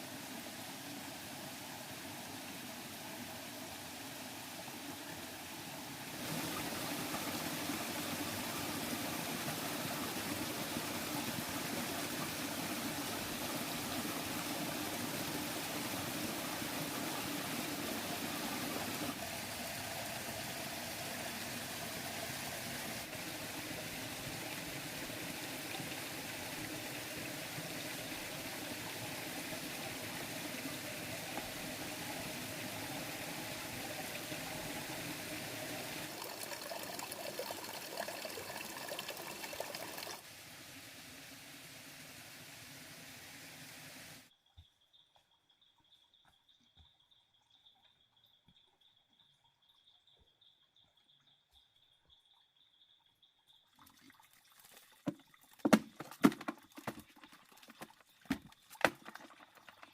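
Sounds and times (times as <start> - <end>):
stream water rushing: 0.0 - 44.2.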